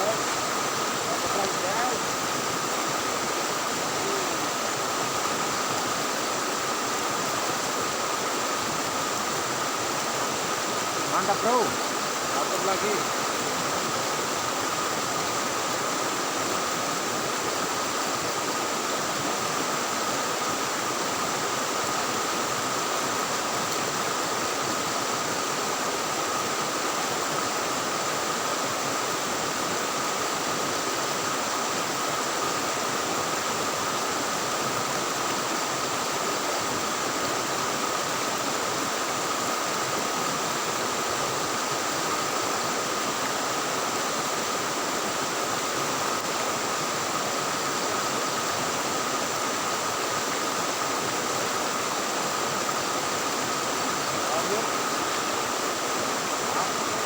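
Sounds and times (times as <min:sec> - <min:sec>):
river current rushing: 0:00.0 - 0:57.0.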